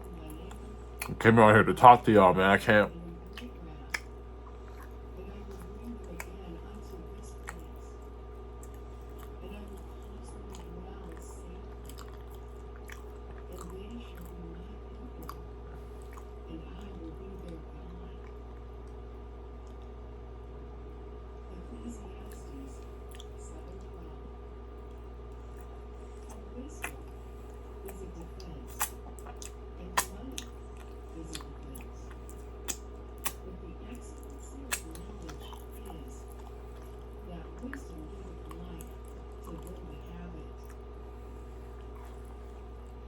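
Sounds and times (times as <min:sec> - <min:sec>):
chewing soft doughnut: 0:00.0 - 0:43.0
steady low hum: 0:00.0 - 0:43.0
wet mouth clicks and smacks: 0:26.3 - 0:27.0, 0:27.8 - 0:33.4.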